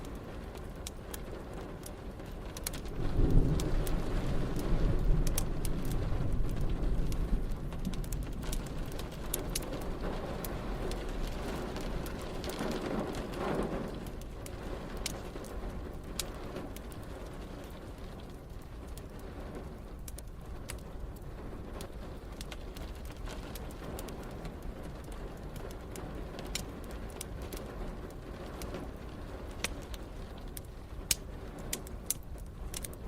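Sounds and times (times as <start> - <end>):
steady rain: 0.0 - 33.0
wood fire crackling: 0.0 - 33.0
thunder rumbling: 2.8 - 18.3.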